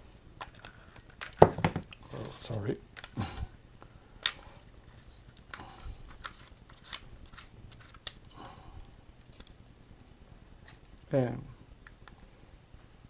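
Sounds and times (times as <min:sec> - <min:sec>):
rubbing and rustling: 0:04.8 - 0:08.2.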